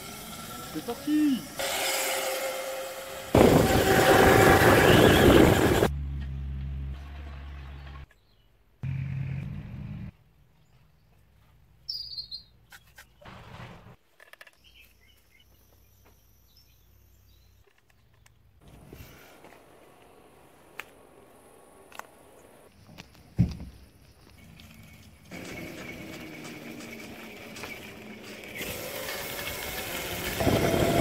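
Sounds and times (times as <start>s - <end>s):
bird chirping: 10.3s - 13.3s, 14.5s - 18.5s.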